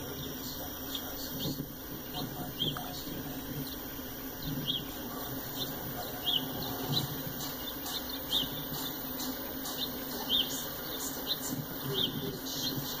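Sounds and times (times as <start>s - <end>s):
small bird chirping: 0.0s - 13.0s
steady low hum: 0.0s - 13.0s.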